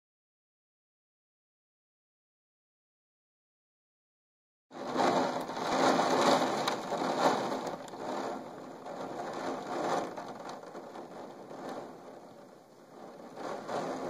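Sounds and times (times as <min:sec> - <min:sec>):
heavy rain: 0:04.7 - 0:14.0.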